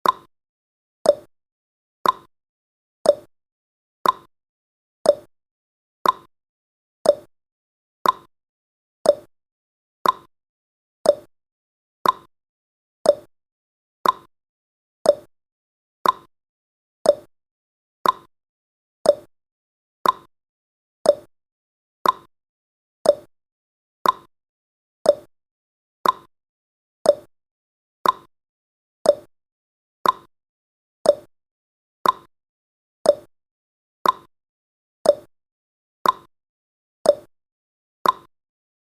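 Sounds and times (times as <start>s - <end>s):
clock ticking: 2.0s - 2.3s, 4.0s - 4.3s, 6.0s - 6.3s, 8.0s - 8.3s, 10.0s - 10.3s, 12.0s - 12.3s, 14.0s - 14.3s, 15.1s - 15.3s, 16.0s - 16.3s, 18.0s - 18.3s, 20.0s - 20.3s, 21.1s - 21.3s, 22.0s - 22.3s, 24.0s - 24.3s, 26.0s - 26.3s, 28.0s - 28.3s, 29.1s - 29.3s, 30.0s - 30.3s, 31.1s - 31.3s, 32.0s - 32.3s, 33.1s - 33.3s, 34.0s - 34.3s, 35.1s - 35.3s, 36.0s - 36.3s, 38.0s - 38.3s.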